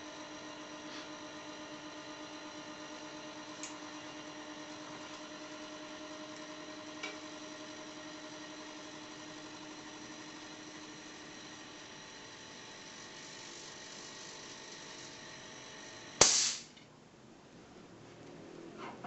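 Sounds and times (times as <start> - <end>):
air compressor humming: 0.0 - 16.8
small click: 3.6 - 3.8.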